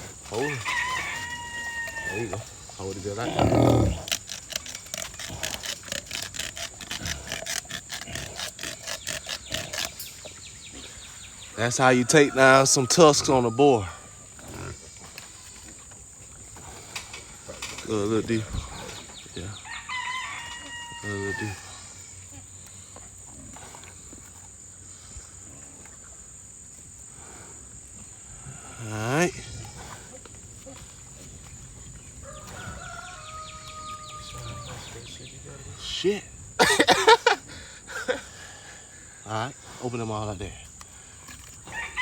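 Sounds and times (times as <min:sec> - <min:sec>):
tusk being cut with scraping strokes: 0:00.0 - 0:13.5, 0:39.6 - 0:42.0
insects chirring: 0:00.0 - 0:42.0.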